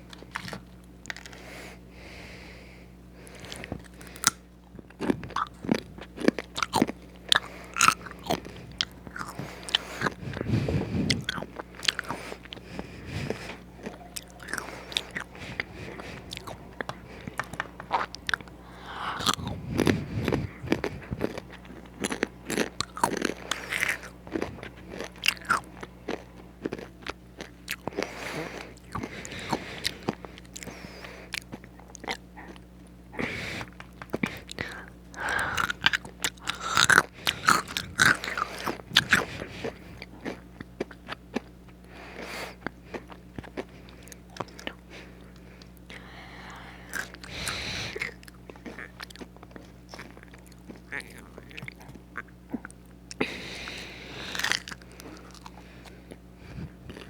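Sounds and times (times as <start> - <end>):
crunching crispy fries: 0.0 - 1.5, 3.2 - 33.0, 33.6 - 57.0.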